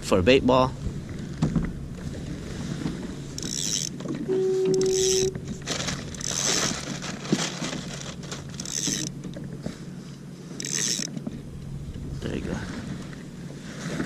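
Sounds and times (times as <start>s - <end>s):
mechanical creaking and rasping: 2.8s - 9.7s, 10.5s - 11.4s
beep: 4.3s - 5.4s.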